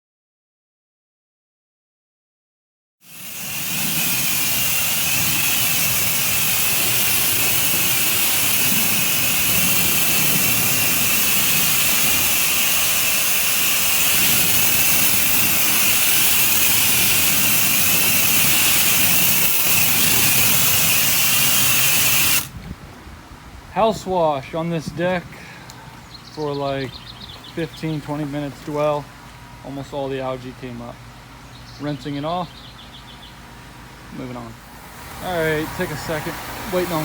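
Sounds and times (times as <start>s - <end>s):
high-pressure water spray hissing: 3.0s - 22.5s, 34.3s - 37.0s
pressure washer engine running: 3.0s - 22.5s, 24.5s - 37.0s.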